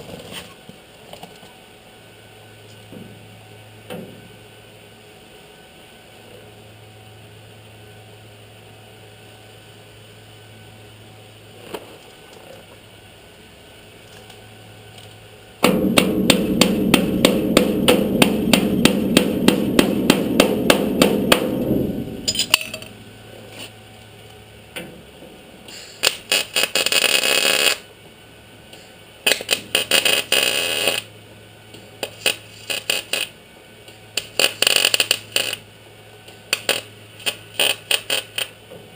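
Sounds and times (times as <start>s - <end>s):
welding crackle: 25.7s - 27.9s, 28.8s - 31.1s, 31.7s - 38.7s.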